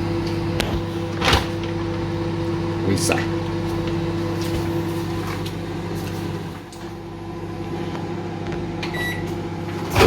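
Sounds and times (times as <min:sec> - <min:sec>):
microwave oven humming: 0:00.0 - 0:10.0.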